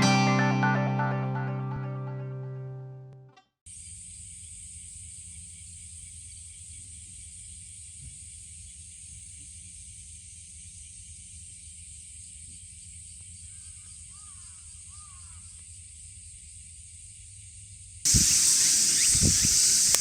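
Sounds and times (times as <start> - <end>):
faint chirping calls: 18.1 - 20.0
faint high hiss: 18.1 - 20.0.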